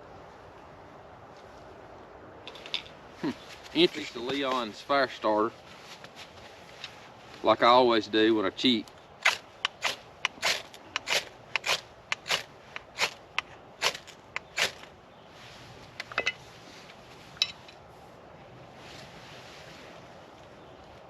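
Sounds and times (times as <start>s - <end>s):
fire starter rod scraping: 9.2s - 14.9s.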